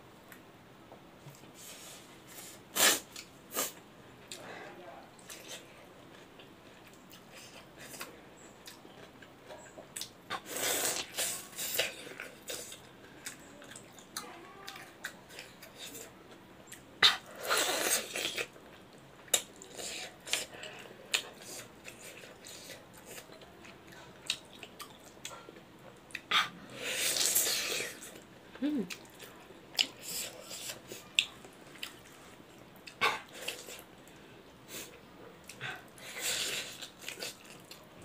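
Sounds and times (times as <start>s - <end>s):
wet chewing and mouth clicks: 27.1s - 34.2s.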